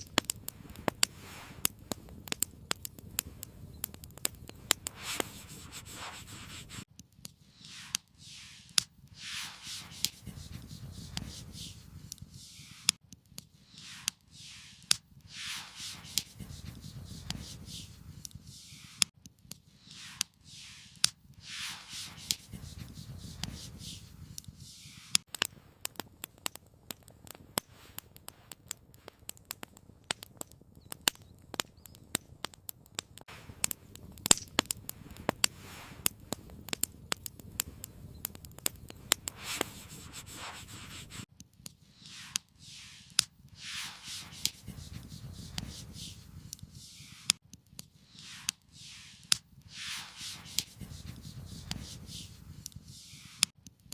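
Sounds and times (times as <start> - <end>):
sharp crackles and clicks: 0.0 - 53.9
rustling scrapes: 0.5 - 1.7, 4.7 - 6.9, 7.5 - 13.0, 13.6 - 19.1, 19.8 - 25.2, 39.0 - 41.3, 41.9 - 47.4, 48.1 - 53.5.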